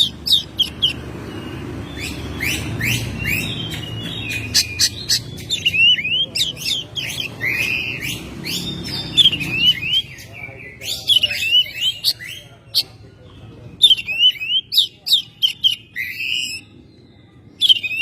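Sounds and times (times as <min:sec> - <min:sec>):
magpie-robin singing: 0:00.0 - 0:18.0.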